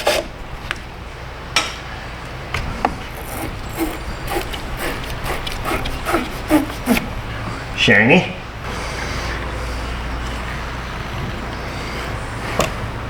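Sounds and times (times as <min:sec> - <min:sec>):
scrubbing strokes: 0:02.9 - 0:07.8.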